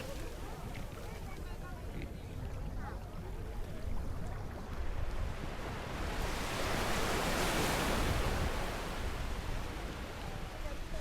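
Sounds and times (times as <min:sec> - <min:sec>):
wind rumble on microphone: 0:00.0 - 0:11.0
sea wave breaking: 0:05.9 - 0:10.4.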